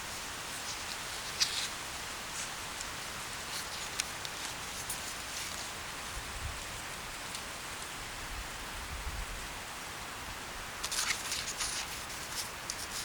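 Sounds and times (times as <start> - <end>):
steady outdoor hiss: 0.0 - 13.0
light crackles and ticks: 0.1 - 5.8, 7.2 - 8.0, 10.8 - 13.0.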